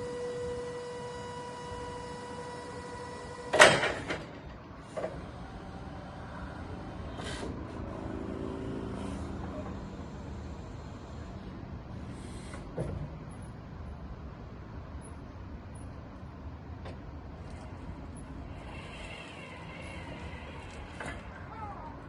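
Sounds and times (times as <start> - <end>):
loud mechanical clunk: 3.3 - 5.4
low electric hum: 13.1 - 22.0.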